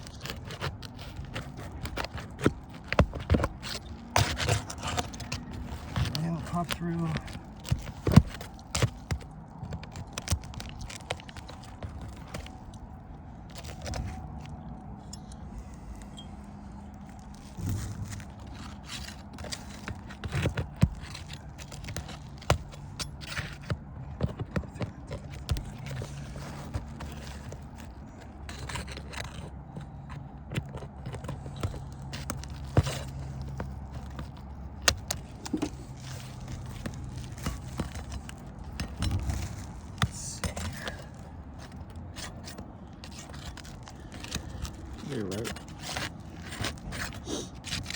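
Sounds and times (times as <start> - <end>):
low steady hum: 0.0 - 47.2
roofing shingles being pried loose: 0.0 - 47.9.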